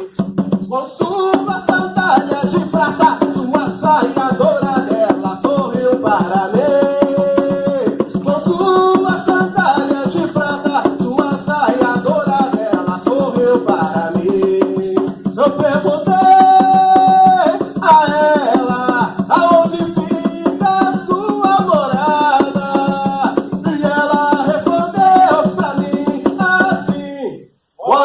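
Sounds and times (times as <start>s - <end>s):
percussion beat: 0.0s - 28.0s
voices chanting: 27.8s - 28.0s.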